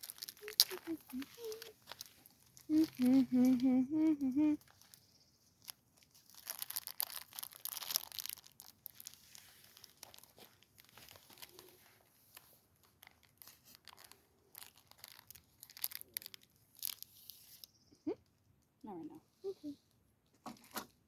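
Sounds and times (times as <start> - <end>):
crinkling and rustling: 0.0 - 17.8, 20.2 - 21.0
voice-like hum: 2.7 - 4.6.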